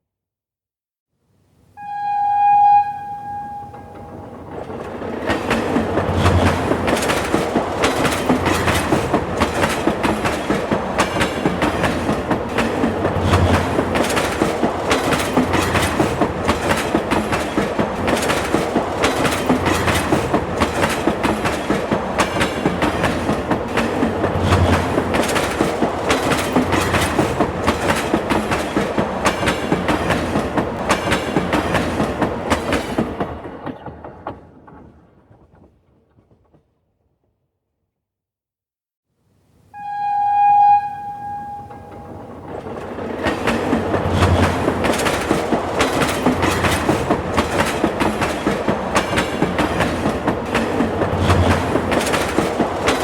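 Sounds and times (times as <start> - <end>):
train wheels clickety-clack: 3.8 - 36.8, 41.5 - 53.0.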